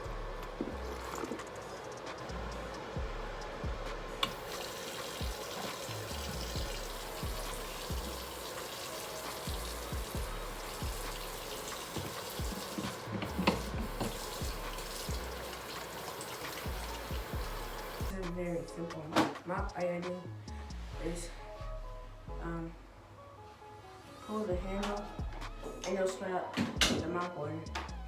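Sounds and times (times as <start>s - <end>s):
background music with low beat: 0.0s - 23.2s, 24.2s - 28.0s
water running from a tap: 0.5s - 1.6s, 4.2s - 18.1s.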